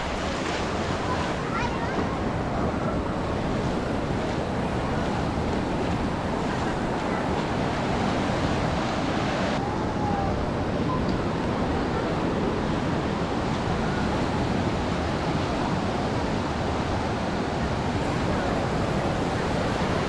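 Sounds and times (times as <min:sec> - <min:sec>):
ocean waves breaking on beach: 0:00.0 - 0:20.0
wind on microphone: 0:00.0 - 0:20.0.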